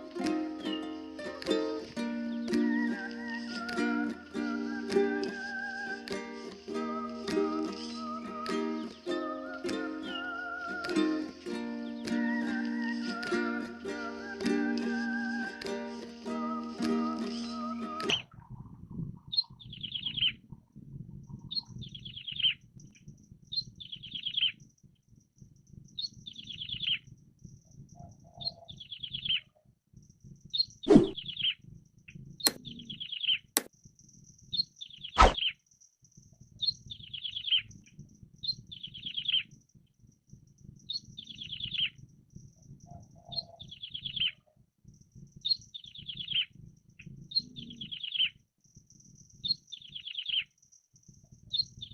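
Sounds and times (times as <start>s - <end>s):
bird singing trilled phrases: 17.5s - 20.5s, 21.3s - 22.7s, 23.5s - 24.6s, 25.9s - 27.1s, 28.3s - 29.5s, 30.4s - 31.6s, 32.4s - 33.6s, 34.5s - 35.6s, 36.6s - 39.6s, 40.8s - 42.0s, 43.2s - 44.4s, 45.4s - 48.4s, 49.4s - 50.5s, 51.5s - 51.9s.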